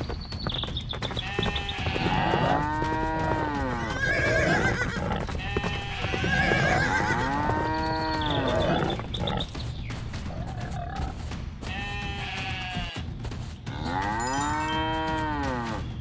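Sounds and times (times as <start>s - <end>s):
cartoon cows mooing: 13.7s - 15.8s.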